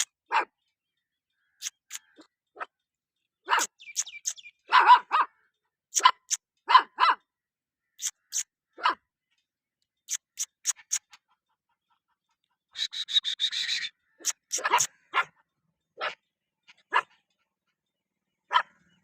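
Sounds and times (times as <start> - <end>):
dogs barking: 0.0 - 0.6, 3.5 - 3.8, 4.7 - 7.3, 8.3 - 9.0, 14.2 - 17.3, 18.5 - 19.0
dog yelping: 3.5 - 3.7, 4.7 - 5.3, 8.3 - 9.0, 14.2 - 15.4.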